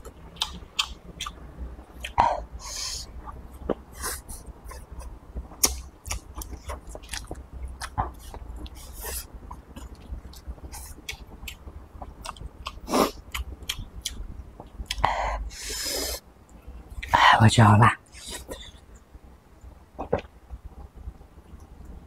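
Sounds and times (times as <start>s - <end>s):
man chewing rice: 0.0s - 17.1s.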